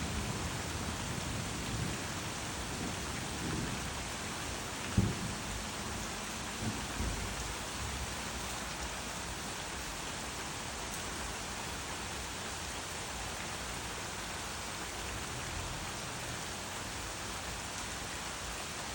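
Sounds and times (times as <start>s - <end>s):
steady rain falling: 0.0s - 18.9s
low thunder rumble: 4.9s - 5.7s.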